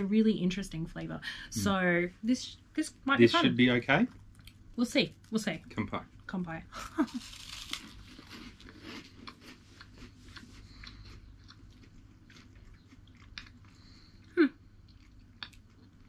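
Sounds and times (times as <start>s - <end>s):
chewing crunchy snack sticks: 7.1s - 16.0s.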